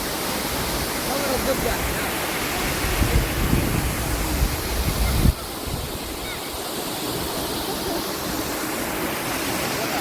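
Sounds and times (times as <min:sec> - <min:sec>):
waterfall rushing water: 0:00.0 - 0:10.0
wind buffeting microphone: 0:01.5 - 0:06.4.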